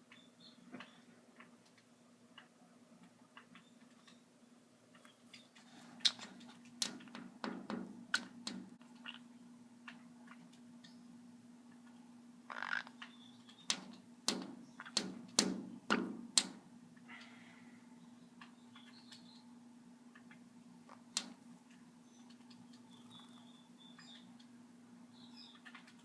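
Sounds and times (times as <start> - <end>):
steady low hum: 0.0 - 26.0
sharp taps and knocks: 6.1 - 8.8, 13.5 - 16.6, 21.1 - 21.4.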